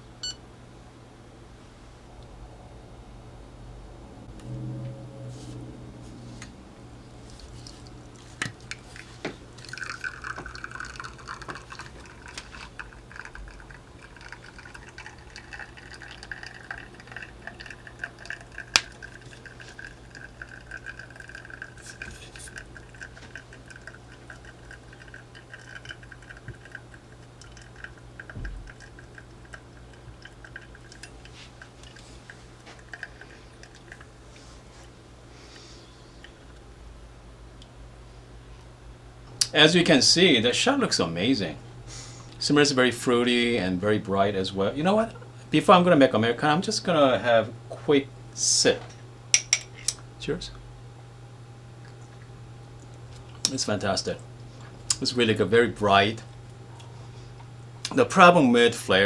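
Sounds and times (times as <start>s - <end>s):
faint steady hum: 0.0s - 59.0s
espresso trickling into cup: 7.1s - 34.6s.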